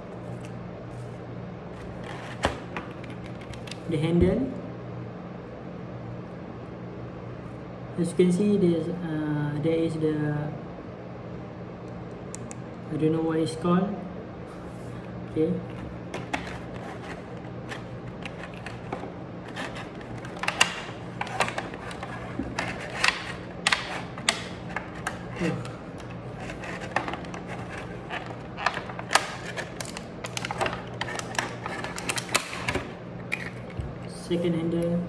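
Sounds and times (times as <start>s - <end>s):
steady low hum: 0.0s - 35.0s
packaging being handled: 1.7s - 3.9s, 14.8s - 34.2s
plastic handles clicking and knocking: 15.7s - 34.2s.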